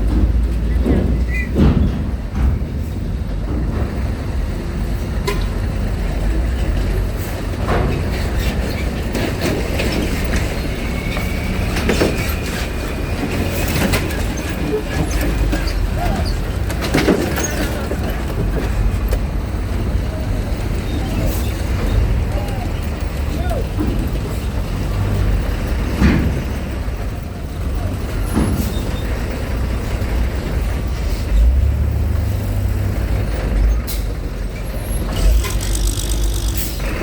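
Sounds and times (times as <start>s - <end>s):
knocks and clanks: 0.0s - 37.0s
vehicle engine rumble: 0.0s - 37.0s.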